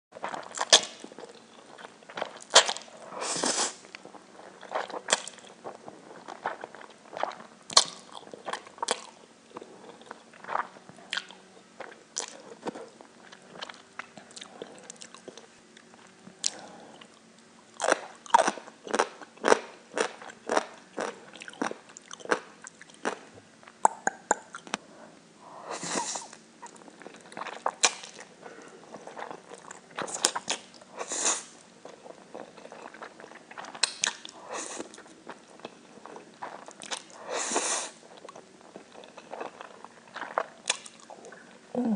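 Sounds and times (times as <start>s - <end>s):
chewing: 3.8s - 17.2s, 17.8s - 23.2s, 26.0s - 30.9s, 31.8s - 37.2s, 37.9s - 41.9s.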